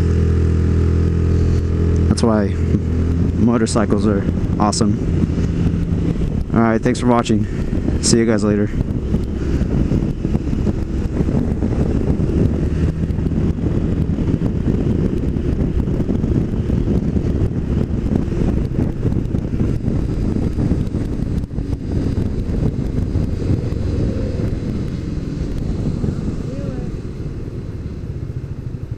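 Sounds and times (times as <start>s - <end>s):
road noise: 0.0s - 28.9s
wind rushing over microphone: 0.0s - 28.9s
scooter engine: 8.8s - 28.9s.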